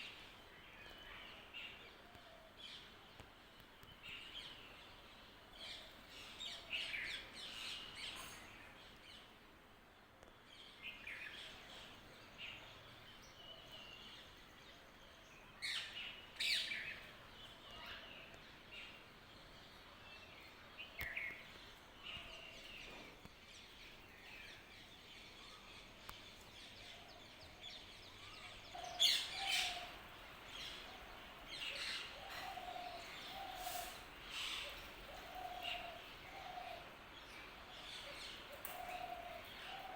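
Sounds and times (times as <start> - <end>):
birds chirping: 18.7 - 39.9.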